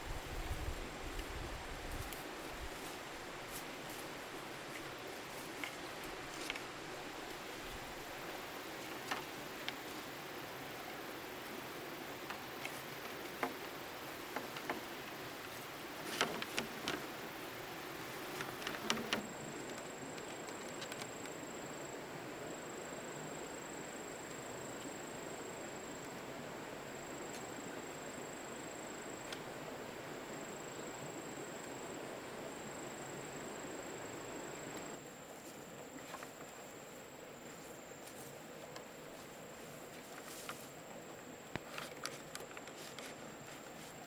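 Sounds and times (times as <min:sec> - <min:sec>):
outdoor hiss: 0:00.0 - 0:44.0
light clicks and knocks: 0:12.2 - 0:15.0, 0:16.0 - 0:17.2, 0:18.3 - 0:21.4.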